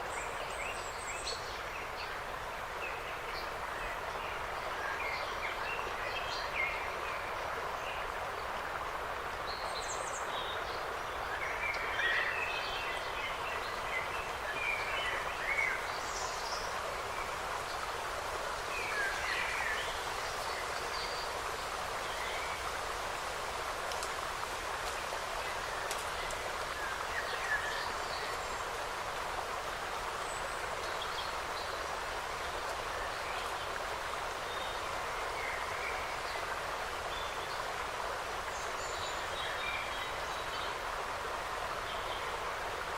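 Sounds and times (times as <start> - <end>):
steady forest hiss: 0.0 - 42.9.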